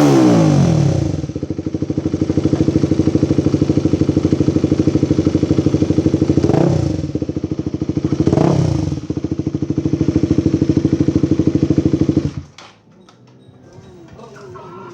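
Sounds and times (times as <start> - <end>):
engine revving: 0.0 - 1.4, 2.2 - 7.2, 8.0 - 9.1
motorcycle engine idling: 0.0 - 14.9.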